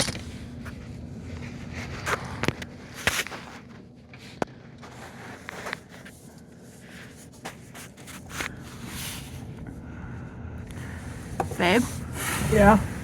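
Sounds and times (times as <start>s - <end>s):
faint low hum: 0.0s - 13.0s
shuffling: 10.8s - 13.0s.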